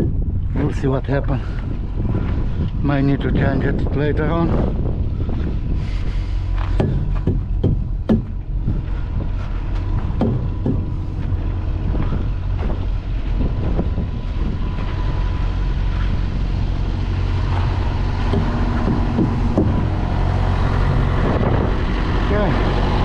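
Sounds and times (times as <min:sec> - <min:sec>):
diesel truck engine idling: 0:00.0 - 0:23.0
wind on microphone: 0:00.0 - 0:23.0
knocks and clicks: 0:06.6 - 0:08.5, 0:10.2 - 0:11.4, 0:17.5 - 0:20.1.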